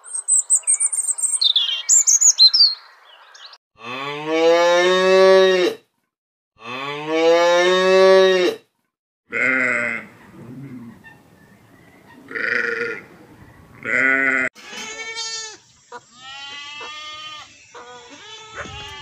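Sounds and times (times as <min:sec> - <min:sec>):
bird chirping: 0:00.0 - 0:03.6, 0:10.2 - 0:12.4
cattle mooing: 0:03.8 - 0:05.8, 0:06.6 - 0:08.6, 0:09.3 - 0:11.0, 0:12.2 - 0:13.2.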